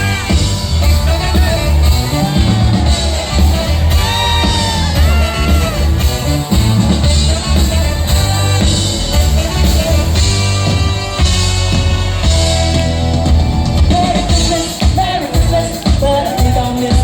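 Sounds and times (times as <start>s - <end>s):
bass pulse: 0.0s - 14.5s
live rock band playing: 0.0s - 17.0s
person singing: 13.8s - 17.0s.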